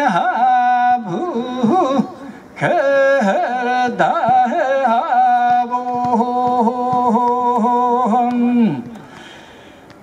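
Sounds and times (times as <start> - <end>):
man singing unaccompanied: 0.0 - 9.0
man breathing in: 9.0 - 9.9.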